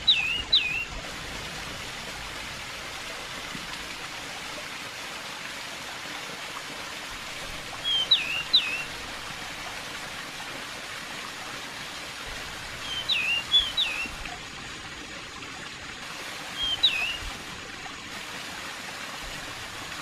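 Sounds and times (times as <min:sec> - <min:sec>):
bird whistling: 0:00.0 - 0:00.9, 0:07.8 - 0:08.9, 0:12.8 - 0:14.1, 0:16.6 - 0:17.3
running water rushing: 0:00.0 - 0:20.0.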